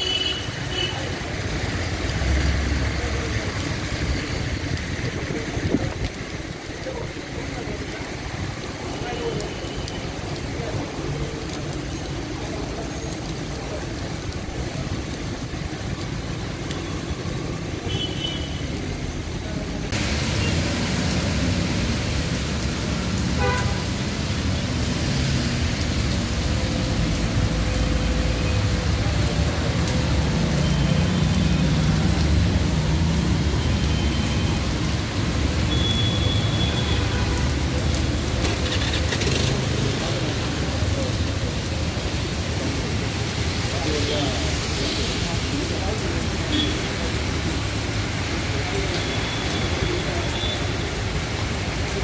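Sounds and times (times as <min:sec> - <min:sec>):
heavy rain hissing: 0:00.0 - 0:52.0
vehicle engines rumbling: 0:00.0 - 0:52.0.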